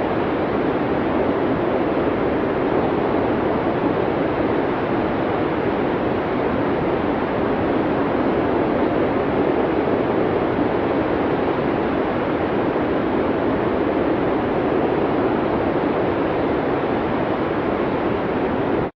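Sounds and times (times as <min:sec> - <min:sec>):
snowstorm wind blowing: 0:00.0 - 0:18.9.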